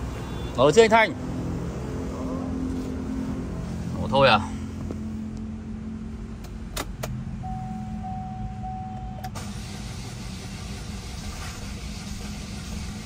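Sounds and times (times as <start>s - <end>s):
steady beep: 7.4s - 9.3s
starter motor cranking engine: 9.2s - 13.0s.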